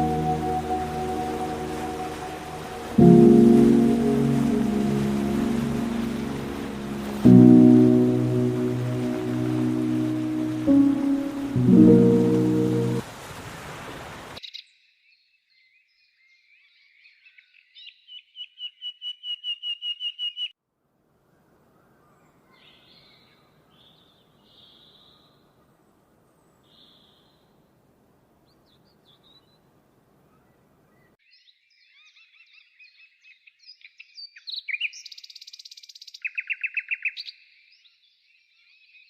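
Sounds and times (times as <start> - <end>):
music: 0.0 - 13.0
songbird singing: 0.0 - 13.0, 28.4 - 39.0
rain-like hiss: 0.0 - 14.4.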